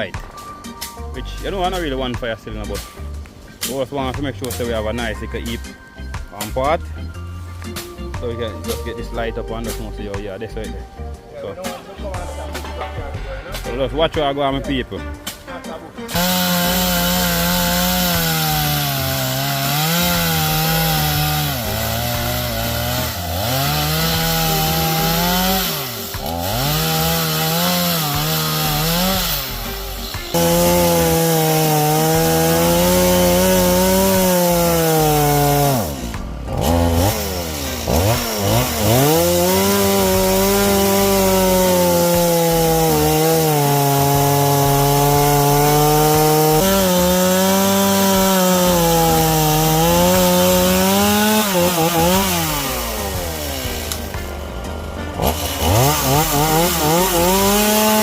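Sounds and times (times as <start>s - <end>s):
chainsaw cutting wood: 15.2s - 58.0s.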